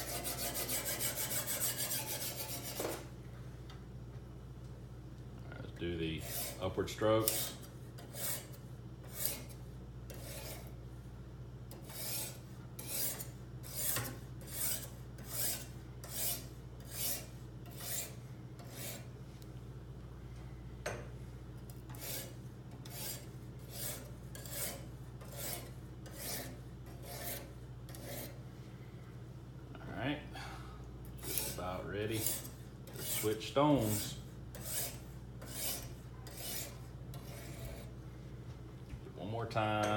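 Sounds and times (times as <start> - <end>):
sharpening stone scraping knife: 0.0 - 2.9, 6.2 - 6.6, 7.2 - 10.8, 11.8 - 19.1, 21.9 - 28.4, 31.2 - 37.9.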